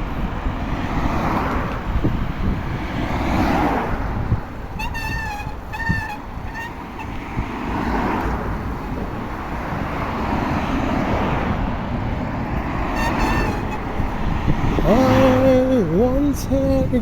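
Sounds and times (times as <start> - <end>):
road noise: 0.0 - 17.0
wind: 0.0 - 17.0
birds honking: 4.7 - 8.2, 12.6 - 14.4.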